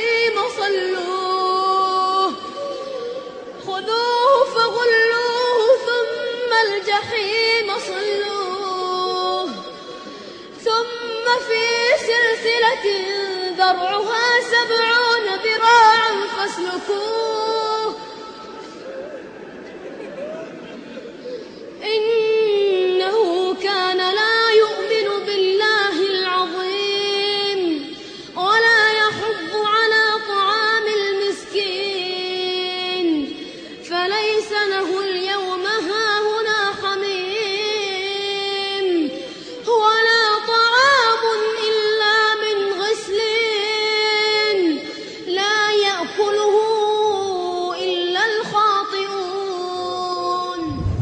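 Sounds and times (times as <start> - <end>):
high voice chanting: 50.6 - 51.0.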